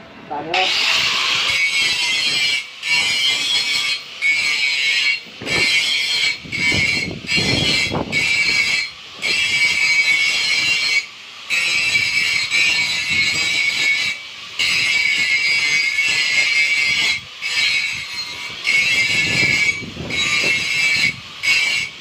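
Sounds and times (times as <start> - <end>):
welding arc crackling and hissing: 0.4 - 22.0.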